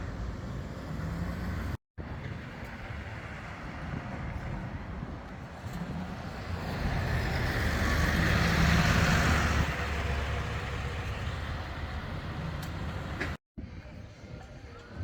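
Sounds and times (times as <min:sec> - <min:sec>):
large vehicle passing: 0:06.4 - 0:13.2.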